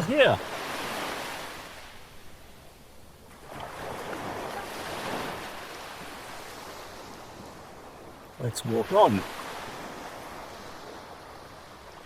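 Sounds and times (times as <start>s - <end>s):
ocean surf washing onto beach: 0.0s - 1.8s, 8.3s - 12.0s.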